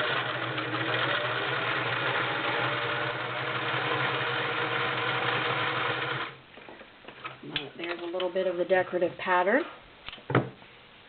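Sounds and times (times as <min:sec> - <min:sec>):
sewing machine running: 0:00.0 - 0:06.4.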